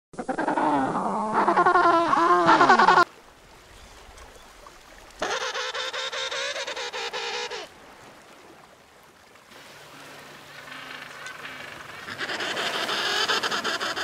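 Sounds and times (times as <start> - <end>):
penguin braying call: 5.2 - 7.7, 10.6 - 14.0.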